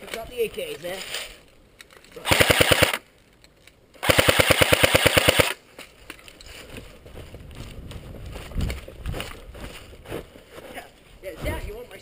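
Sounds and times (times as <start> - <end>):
airsoft gun firing bursts: 2.2 - 3.0, 4.0 - 5.6.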